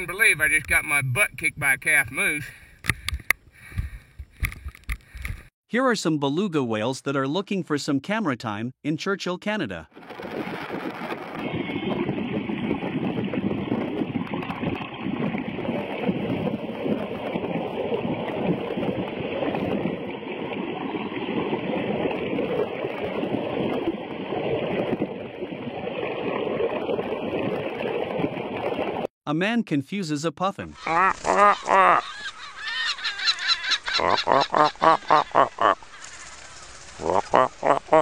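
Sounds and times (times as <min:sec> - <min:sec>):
water rushing and gurgling: 0:10.0 - 0:29.1, 0:34.2 - 0:38.0.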